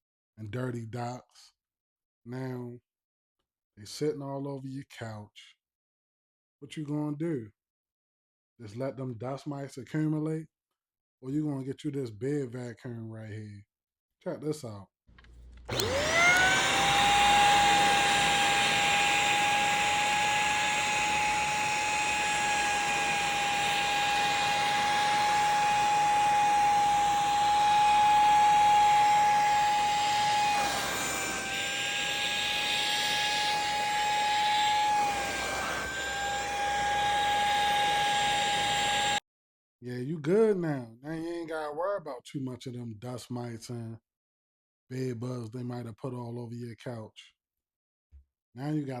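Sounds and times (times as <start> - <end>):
vacuum motor whining: 15.2 - 39.2.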